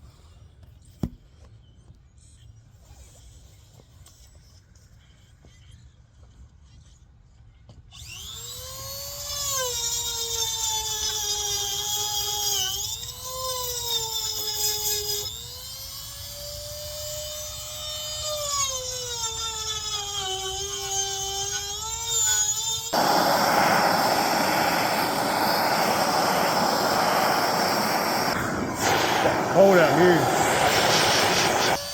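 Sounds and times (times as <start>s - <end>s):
rotary carving tool whining: 7.9s - 31.9s
steady rushing noise: 23.0s - 31.8s.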